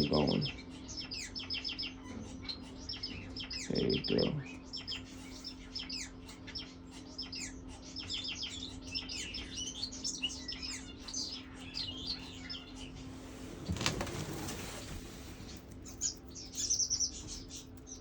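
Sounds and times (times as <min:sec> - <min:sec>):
birds chirping and peeping: 0:00.0 - 0:18.0
steady low hum: 0:00.0 - 0:18.0.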